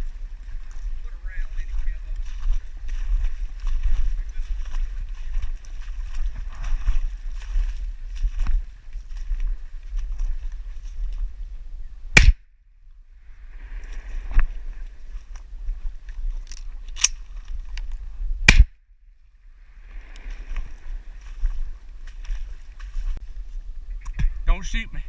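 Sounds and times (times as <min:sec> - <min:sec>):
low wind rumble on microphone: 0:00.0 - 0:25.0
loud shotgun shots: 0:12.2 - 0:12.4, 0:18.5 - 0:18.8.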